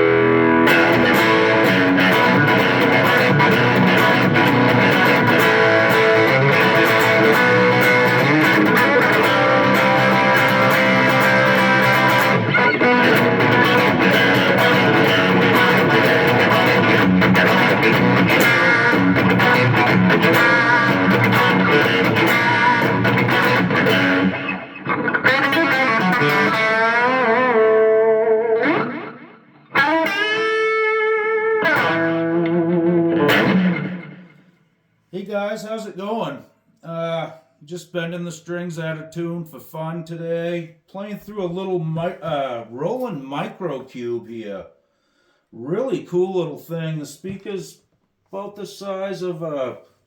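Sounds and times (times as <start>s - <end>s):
wavering guitar string bends: 0.0s - 34.5s
distorted electric guitar riffing: 0.0s - 34.6s.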